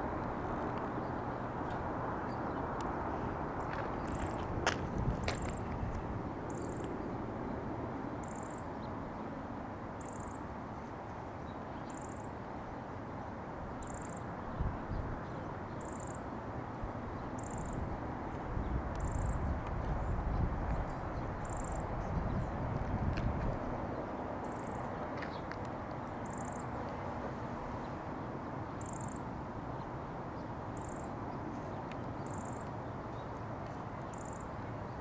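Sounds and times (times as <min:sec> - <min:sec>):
bird chirping: 0:06.5 - 0:07.0, 0:32.2 - 0:33.3.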